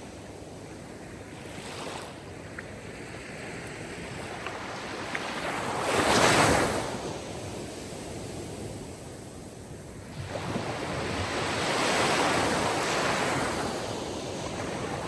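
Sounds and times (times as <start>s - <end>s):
sea waves breaking on shore: 0.0s - 15.0s.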